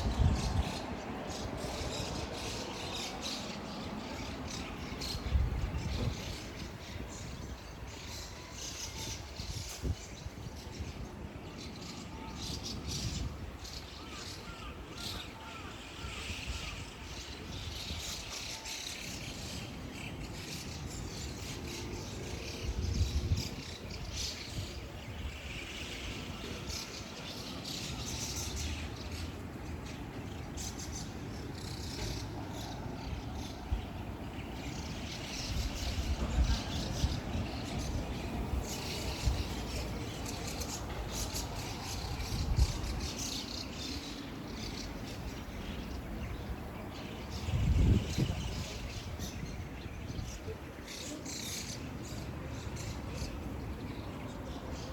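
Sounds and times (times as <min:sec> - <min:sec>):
flock of birds chattering: 0:00.0 - 0:54.9.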